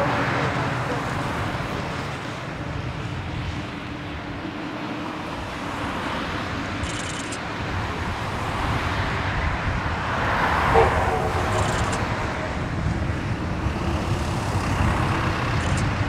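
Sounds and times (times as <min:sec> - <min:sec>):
steam locomotive exhaust rushing: 0:09.9 - 0:16.0.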